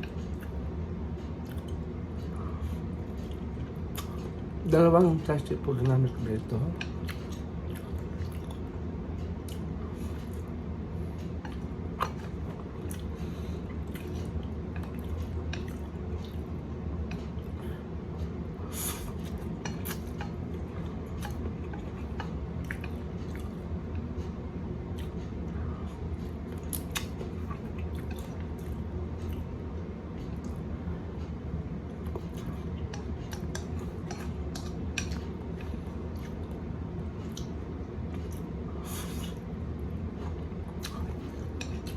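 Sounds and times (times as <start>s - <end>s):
soft eating clicks: 0.0s - 18.5s, 19.1s - 41.9s
steady low hum: 0.0s - 41.9s
chewing noodles: 6.8s - 8.7s, 11.2s - 17.7s, 18.9s - 24.2s, 25.9s - 29.5s, 32.0s - 39.5s, 40.1s - 41.9s.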